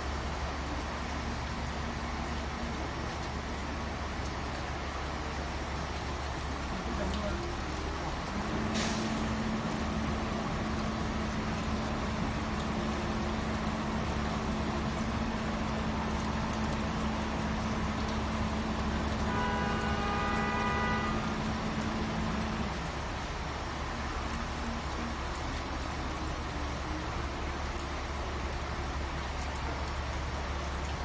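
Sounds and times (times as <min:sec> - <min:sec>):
low traffic hum: 0:00.0 - 0:31.0
horn-like tone: 0:19.2 - 0:21.3.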